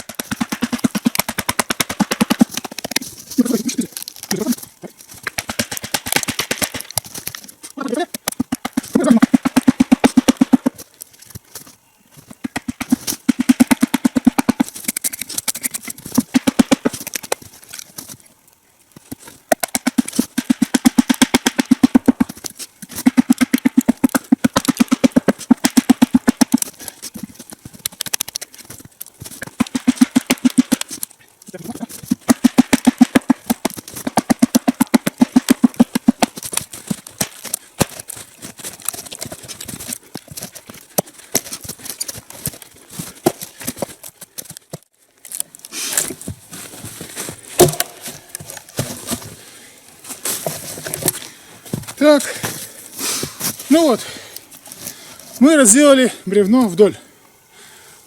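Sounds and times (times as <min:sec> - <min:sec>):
wedges driven into log: 0:47.4 - 0:49.2.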